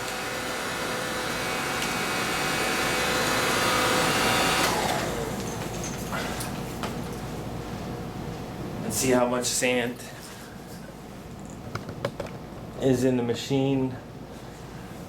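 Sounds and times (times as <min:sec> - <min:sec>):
vacuum motor whine spinning down: 0:00.0 - 0:05.4.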